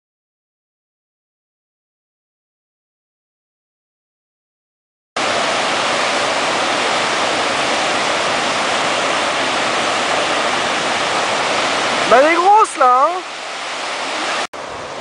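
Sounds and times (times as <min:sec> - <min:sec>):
white water rushing: 0:05.2 - 0:15.0.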